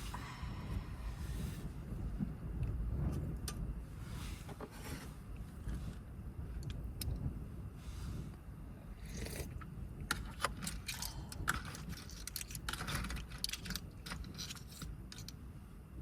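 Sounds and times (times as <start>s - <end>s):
low rumble: 0.0s - 4.5s
small objects clicking and rattling: 10.1s - 15.4s.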